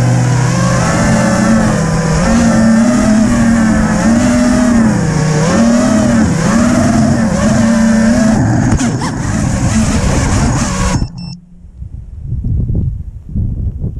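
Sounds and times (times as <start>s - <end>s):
drone motors whining: 0.0s - 12.0s
short high beeps: 10.8s - 11.7s.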